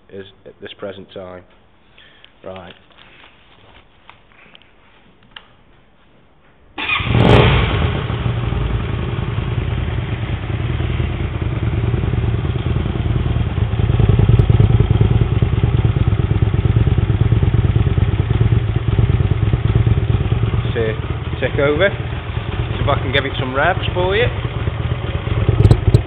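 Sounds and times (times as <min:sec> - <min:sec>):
motorcycle engine starting and idling: 0:06.8 - 0:26.0.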